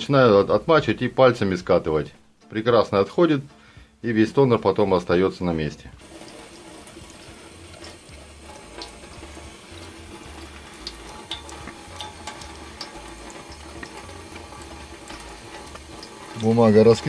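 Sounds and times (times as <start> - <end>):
tap water running: 5.5 - 17.0.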